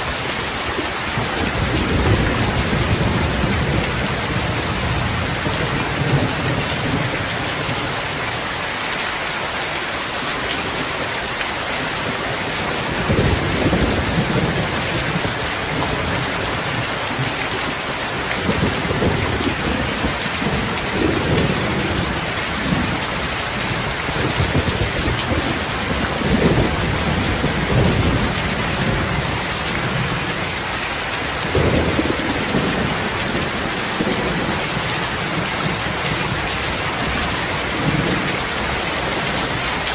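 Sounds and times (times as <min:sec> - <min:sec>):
heavy rain: 0:00.0 - 0:39.9
thunder rumbling: 0:12.5 - 0:30.5, 0:31.3 - 0:39.8.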